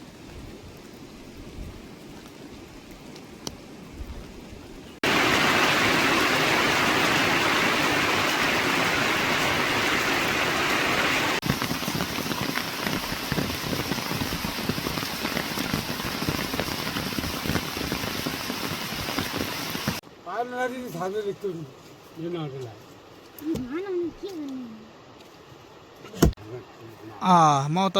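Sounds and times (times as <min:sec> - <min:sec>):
heavy rain hissing: 0:05.0 - 0:20.0
raindrops ticking: 0:11.4 - 0:20.0.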